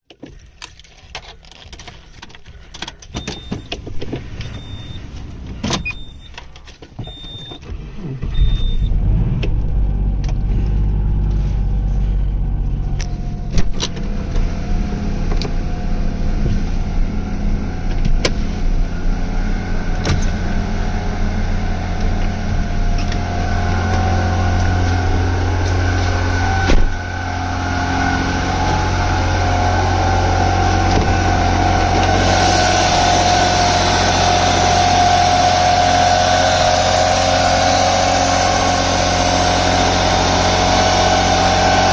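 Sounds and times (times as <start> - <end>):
car engine starting and idling: 0.1 - 41.9
high electronic beeps: 4.4 - 5.0, 5.8 - 6.3, 8.3 - 9.0.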